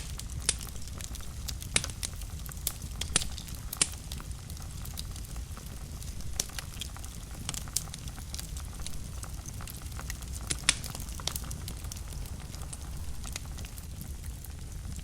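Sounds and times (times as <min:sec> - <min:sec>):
low rumble of fire flames: 0:00.0 - 0:15.0
wood fire crackling and popping: 0:00.0 - 0:15.0.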